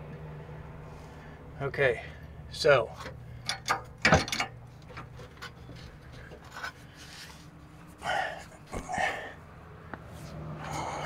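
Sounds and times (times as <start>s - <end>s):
person breathing out hard: 8.0s - 9.5s, 10.6s - 11.0s.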